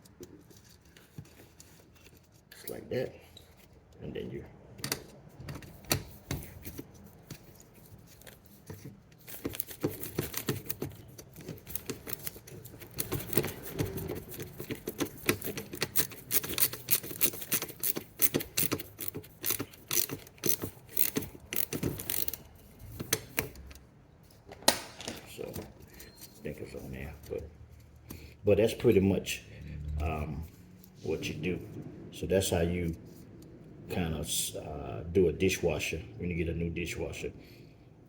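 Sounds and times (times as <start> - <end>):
hands clicking and scraping parts: 0.0 - 29.1.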